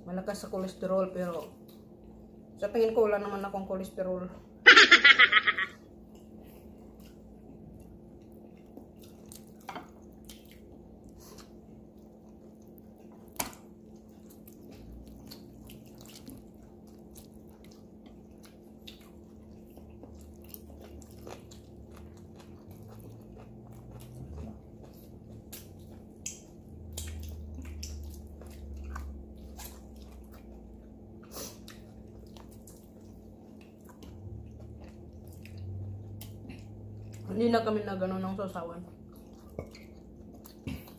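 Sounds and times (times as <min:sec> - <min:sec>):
steady low hum: 0:00.0 - 0:40.9
person chewing meat: 0:05.3 - 0:37.3, 0:39.0 - 0:40.9
wet mouth and finger clicks: 0:25.5 - 0:28.3.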